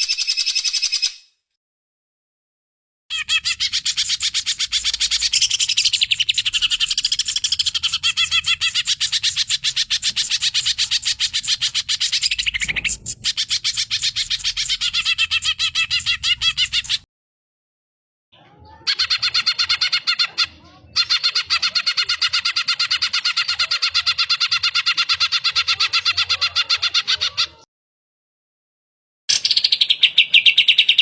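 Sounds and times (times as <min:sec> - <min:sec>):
bird chattering song: 0:03.1 - 0:17.0, 0:18.9 - 0:27.6, 0:29.3 - 0:31.0.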